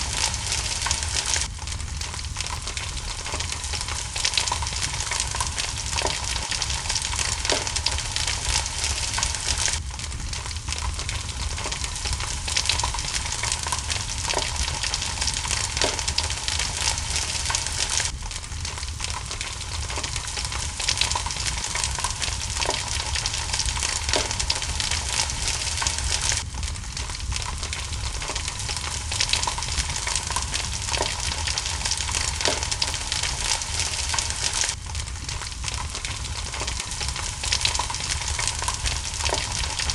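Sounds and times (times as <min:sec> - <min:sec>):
rain hissing: 0:00.0 - 0:39.9
wood fire crackling: 0:00.0 - 0:39.9.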